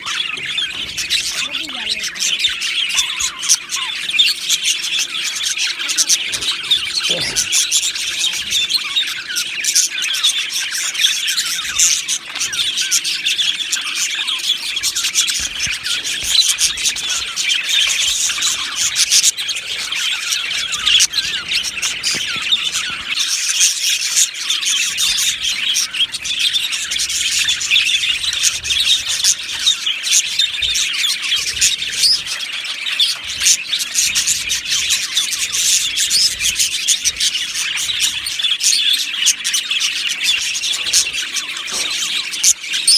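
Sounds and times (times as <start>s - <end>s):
budgerigars chirping and warbling: 0.0s - 42.9s.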